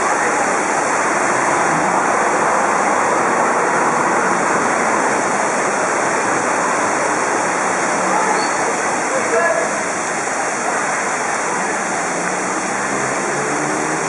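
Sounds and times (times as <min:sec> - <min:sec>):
heavy rain on glass roof: 0:00.0 - 0:14.0
water streaming off canopy: 0:00.0 - 0:14.0.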